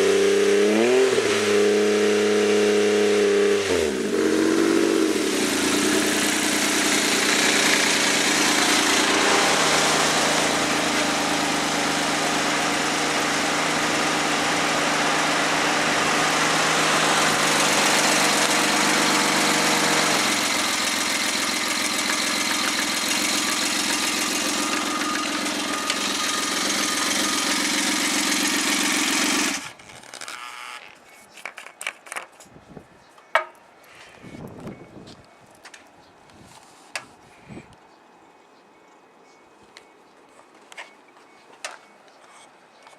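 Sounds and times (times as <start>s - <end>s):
engine idling: 5.3s - 29.8s.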